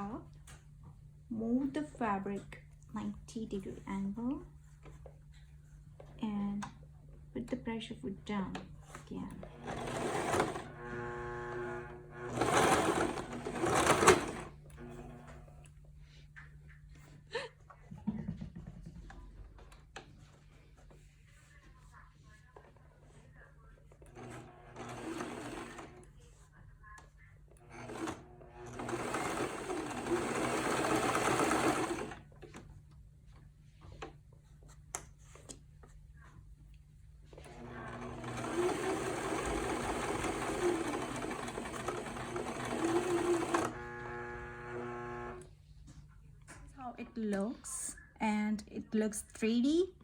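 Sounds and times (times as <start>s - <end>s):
sewing machine motor whine: 9.4s - 15.4s, 24.1s - 26.1s, 27.6s - 32.2s, 37.4s - 45.5s.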